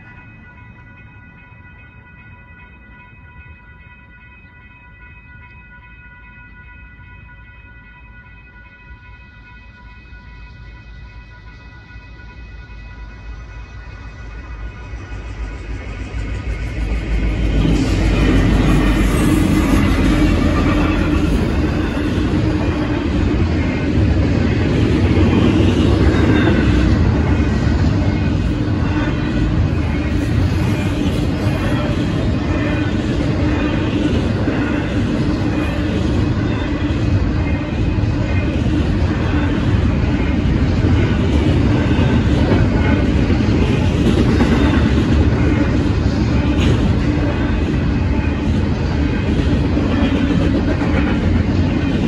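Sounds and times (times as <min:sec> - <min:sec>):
train wheels rumbling on rails: 0:11.5 - 0:52.0.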